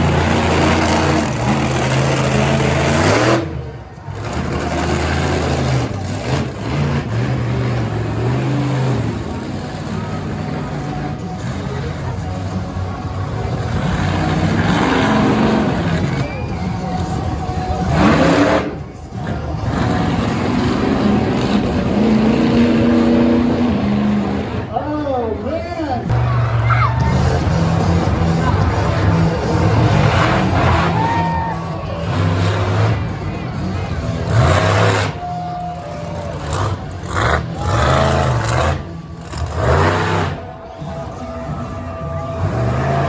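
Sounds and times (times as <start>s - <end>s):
truck engine revving hard: 0.0s - 24.7s, 26.1s - 43.0s.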